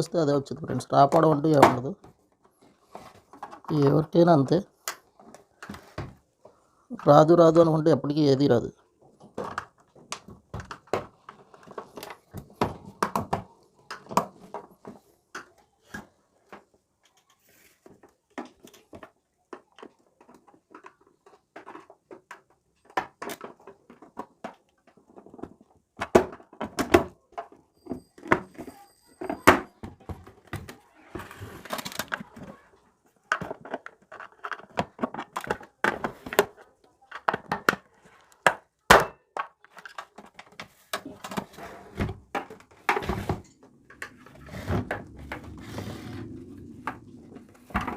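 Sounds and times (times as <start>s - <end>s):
parts knocking and rattling in casing: 33.2s - 37.9s.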